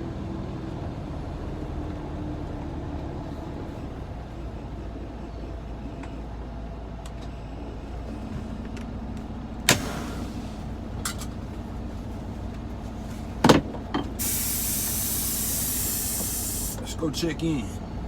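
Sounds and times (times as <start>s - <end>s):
truck engine idling: 0.0s - 18.0s
steady air hiss: 14.2s - 16.9s.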